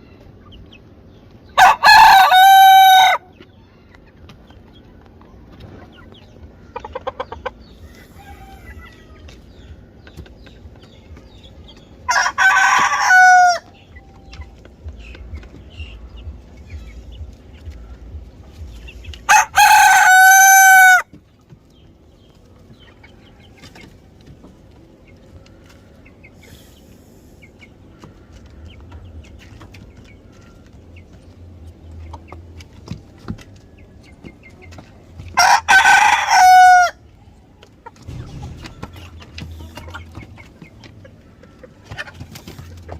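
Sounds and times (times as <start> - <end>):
chicken clucking: 0.0 - 42.9
rooster crowing: 1.6 - 3.3, 7.9 - 9.3, 12.1 - 13.7, 19.3 - 21.1, 35.4 - 37.0.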